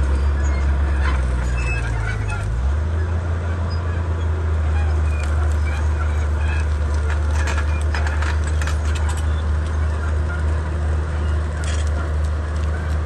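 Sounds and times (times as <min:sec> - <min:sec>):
bulldozer diesel engine droning: 0:00.0 - 0:13.0
sharp clicks and clanks: 0:05.2 - 0:13.0.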